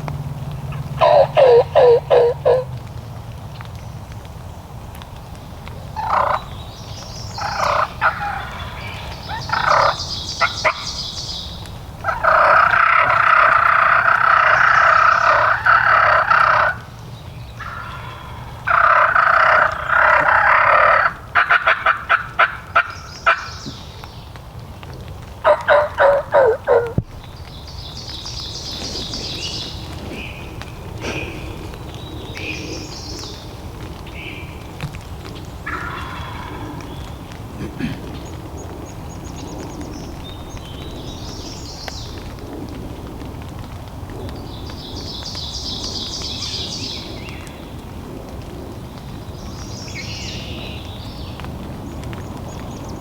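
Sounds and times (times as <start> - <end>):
turkey gobbling: 0.7 - 2.7, 6.0 - 6.5, 7.4 - 11.0, 12.0 - 16.9, 17.6 - 23.8, 25.4 - 27.0, 35.6 - 36.7.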